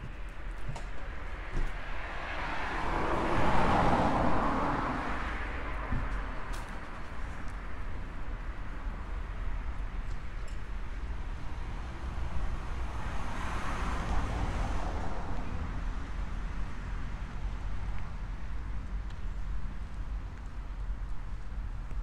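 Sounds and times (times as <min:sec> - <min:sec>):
low traffic rumble: 0:00.0 - 0:22.0
car passing by: 0:01.7 - 0:07.1, 0:11.6 - 0:17.6.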